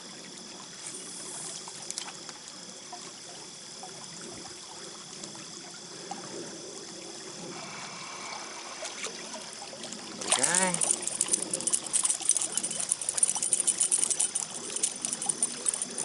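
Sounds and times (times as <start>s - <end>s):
stream flowing and trickling: 0.0s - 16.0s
faint ticks: 9.9s - 16.0s.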